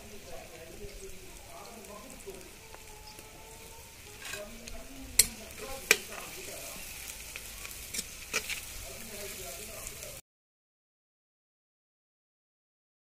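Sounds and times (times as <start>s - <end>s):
onions sizzling in oil: 0.0s - 10.2s.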